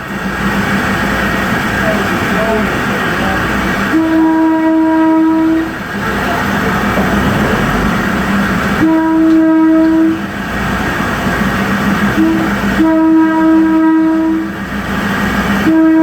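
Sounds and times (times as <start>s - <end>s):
train running noise: 0.0s - 16.0s
train horn blasts: 3.9s - 10.4s, 12.0s - 14.6s, 15.5s - 16.0s.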